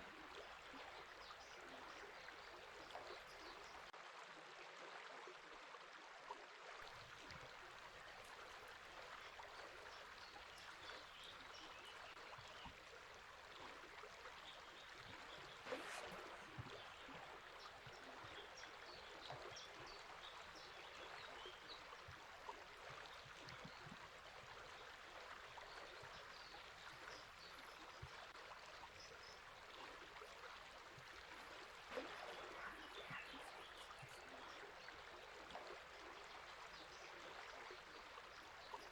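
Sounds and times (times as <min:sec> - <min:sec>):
river flowing: 0:00.0 - 0:03.9, 0:06.8 - 0:38.9
bird chirps: 0:31.9 - 0:34.3.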